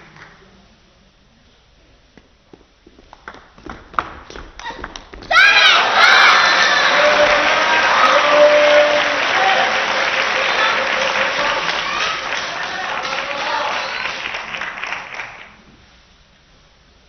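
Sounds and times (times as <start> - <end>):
crowd applauding and cheering: 5.3 - 15.6
voices in crowd: 5.4 - 14.6.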